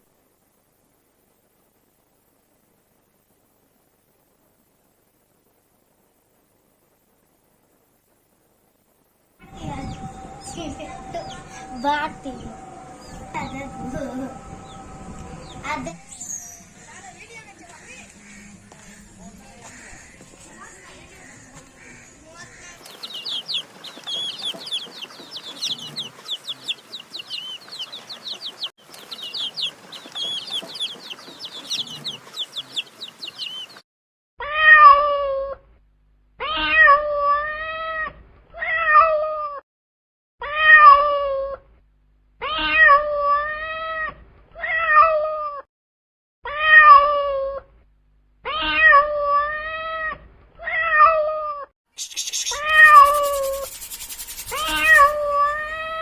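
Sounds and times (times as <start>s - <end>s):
rapid high-pitched chirping: 22.9s - 33.8s, 52.0s - 56.0s
cat meowing: 36.4s - 39.5s, 40.4s - 41.5s, 42.4s - 45.6s, 48.5s - 51.6s
cat hissing: 52.0s - 55.7s.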